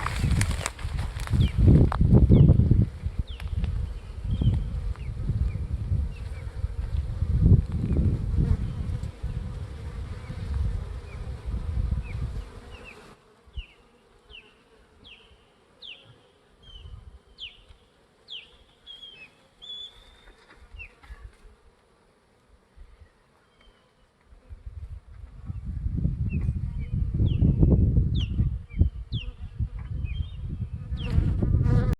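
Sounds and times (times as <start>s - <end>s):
bees buzzing: 0.0s - 24.9s.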